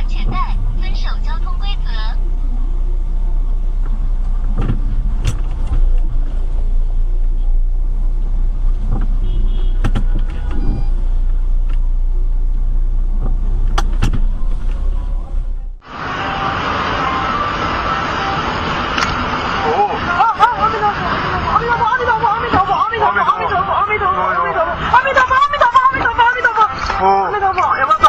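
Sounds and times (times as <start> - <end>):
hissy car noise: 0.0 - 28.0
road and engine rumble: 0.0 - 28.0
sharp knocks and clicks: 8.7 - 10.6, 13.2 - 14.8.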